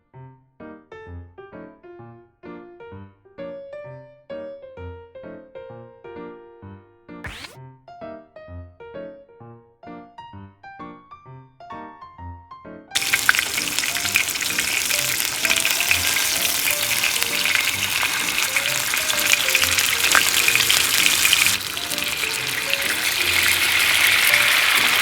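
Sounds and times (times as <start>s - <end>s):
food sizzling in frying: 7.3s - 7.6s, 13.0s - 25.0s
soft music: 11.8s - 25.0s.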